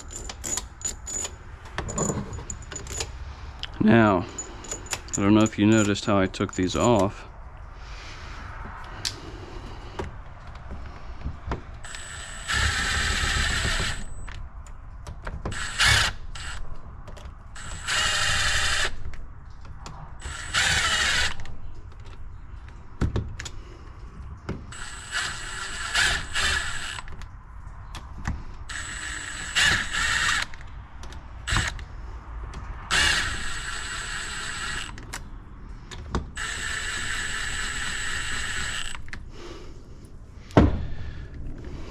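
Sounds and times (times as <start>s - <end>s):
handling clicks and knocks: 0.0s - 7.2s
power driver whining: 11.8s - 14.4s, 15.5s - 16.6s, 17.6s - 19.1s, 20.2s - 21.5s, 24.7s - 27.1s, 28.7s - 30.6s, 31.4s - 31.8s, 32.9s - 35.2s, 36.4s - 39.2s.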